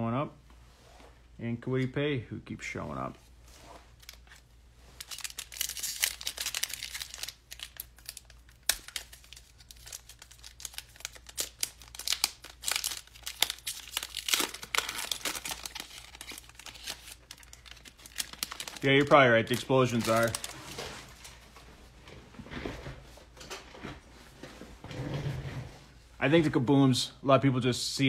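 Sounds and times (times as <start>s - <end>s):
wrappers crinkling and tearing: 3.5s - 21.4s.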